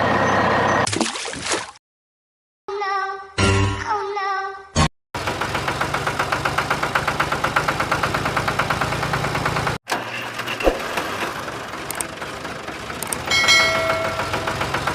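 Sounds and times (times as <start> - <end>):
engine knocking rhythmically: 5.2 - 14.9.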